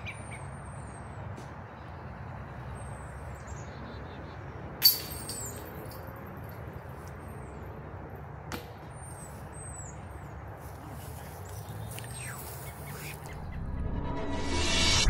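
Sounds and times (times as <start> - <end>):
steady low rumble: 10.2 - 15.0
bird chirping: 11.2 - 13.9.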